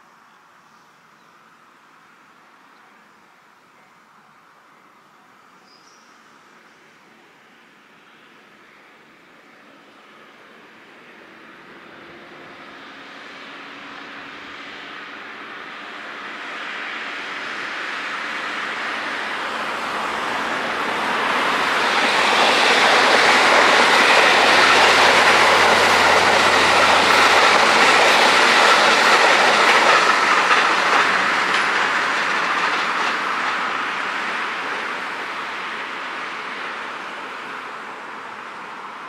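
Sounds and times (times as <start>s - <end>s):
train wheels rushing on rail: 10.2s - 39.0s
clickety-clack over rail joints: 18.5s - 35.8s.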